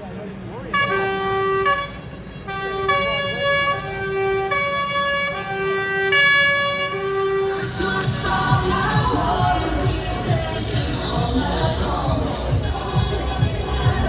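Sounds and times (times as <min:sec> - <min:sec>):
vehicle musical horn notes: 0:00.7 - 0:14.0
loud music: 0:07.5 - 0:14.0.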